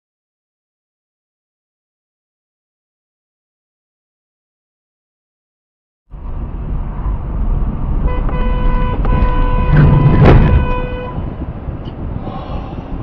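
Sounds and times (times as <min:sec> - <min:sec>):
road and engine noise: 0:06.1 - 0:13.0
car horn: 0:08.0 - 0:11.5.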